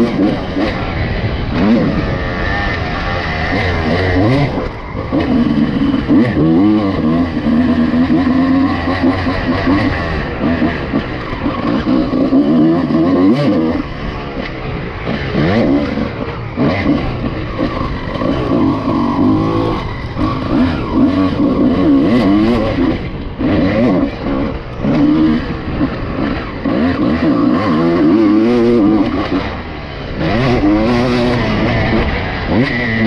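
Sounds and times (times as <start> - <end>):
two-stroke motorcycle engine revving: 0.0 - 33.0.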